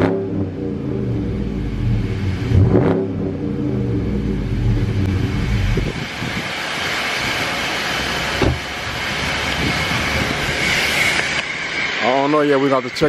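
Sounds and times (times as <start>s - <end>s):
car engine rumbling: 0.0s - 13.0s
steady broad hiss: 5.2s - 13.0s.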